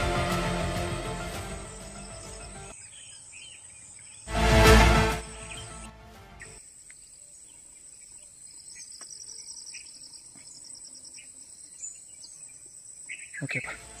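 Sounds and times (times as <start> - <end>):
bird chirps: 5.2 - 14.0.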